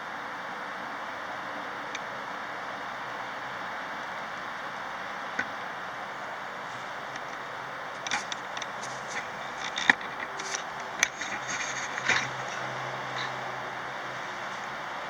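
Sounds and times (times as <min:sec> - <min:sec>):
steady hiss: 0:00.0 - 0:15.0
small scrapes rubs and clicks: 0:08.0 - 0:13.5.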